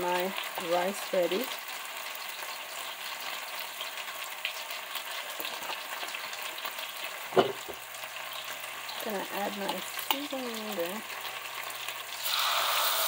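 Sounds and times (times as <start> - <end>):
chicken sizzling in a pan: 0.0 - 13.0
short knock: 7.4 - 7.8.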